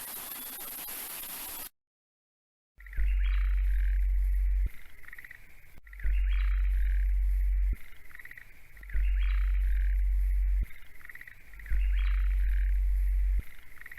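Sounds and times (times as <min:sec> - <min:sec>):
loud deep hum: 0:06.1 - 0:07.8, 0:09.0 - 0:10.7, 0:11.7 - 0:13.4.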